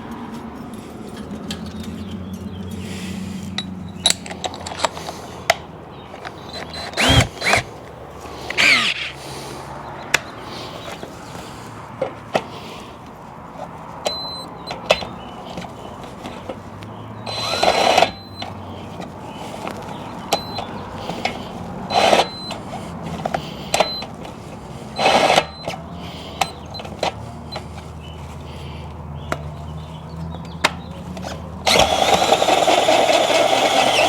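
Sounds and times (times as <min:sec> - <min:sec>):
sharp metallic clicks: 0:03.6 - 0:07.8, 0:08.4 - 0:09.2, 0:14.0 - 0:18.6, 0:19.6 - 0:24.2, 0:25.0 - 0:27.7, 0:30.4 - 0:34.0
power drill motor humming: 0:06.2 - 0:09.2, 0:14.1 - 0:15.7, 0:17.1 - 0:27.7, 0:31.0 - 0:34.0
drill bit squealing in metal: 0:06.4 - 0:07.7, 0:08.6 - 0:09.1, 0:17.3 - 0:18.5.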